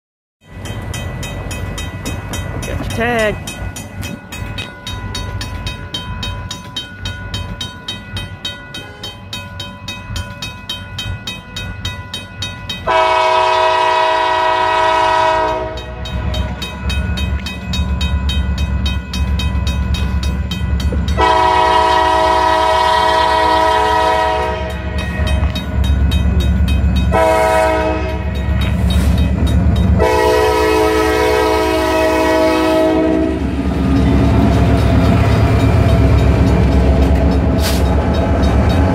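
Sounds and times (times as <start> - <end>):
locomotive horn: 12.9 - 15.9, 21.2 - 25.0, 27.1 - 28.4, 30.0 - 33.6
diesel engines rumbling: 12.9 - 38.9.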